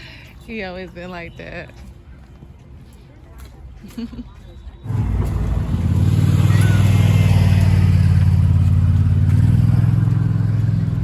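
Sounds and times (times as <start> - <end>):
vehicle engine running: 4.9 - 11.0.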